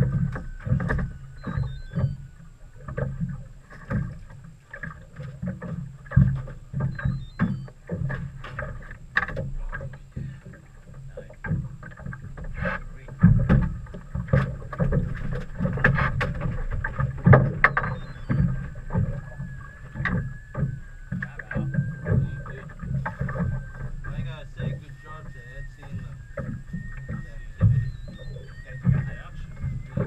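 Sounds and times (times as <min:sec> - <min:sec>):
knocks and thumps on a boat: 0:00.0 - 0:30.0
low steady hum: 0:00.0 - 0:30.0.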